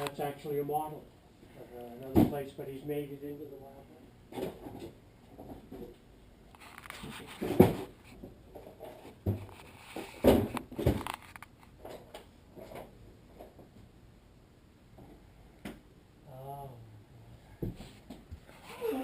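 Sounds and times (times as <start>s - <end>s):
soft knocks and rustles: 4.3s - 13.9s.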